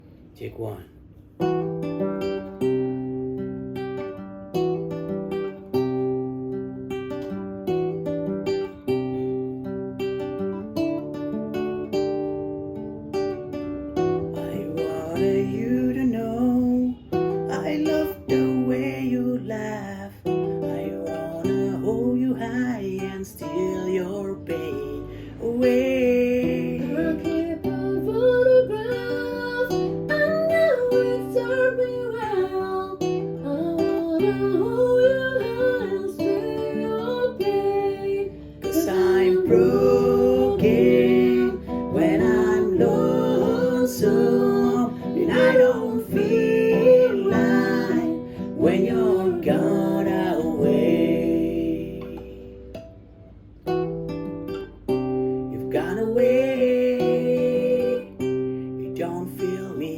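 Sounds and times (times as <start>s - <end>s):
acoustic guitar: 0.0s - 59.9s
person singing: 14.4s - 52.7s, 55.5s - 59.9s.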